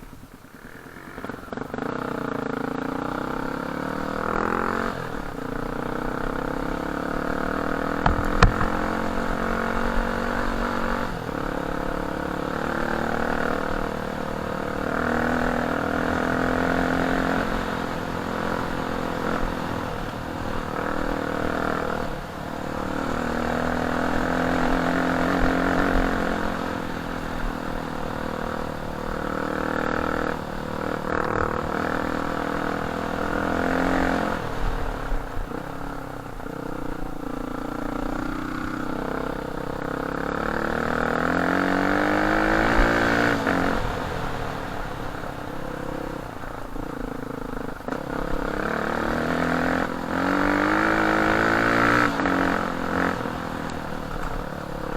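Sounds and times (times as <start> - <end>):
dirt bike engine revving: 1.0 - 45.2, 46.8 - 54.9
sharp knock: 8.0 - 8.9.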